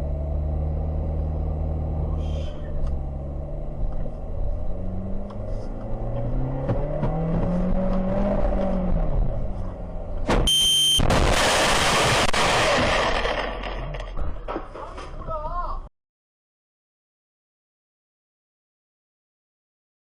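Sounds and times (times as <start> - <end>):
car engine revving: 0.0 - 10.4
brief high beep: 10.5 - 11.1
loud burst of noise: 11.0 - 13.2.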